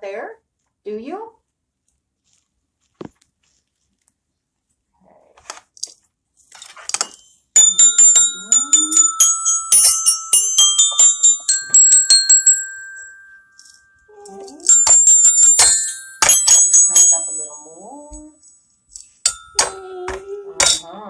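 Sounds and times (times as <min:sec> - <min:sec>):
small metal bell ringing: 0:07.1 - 0:20.9.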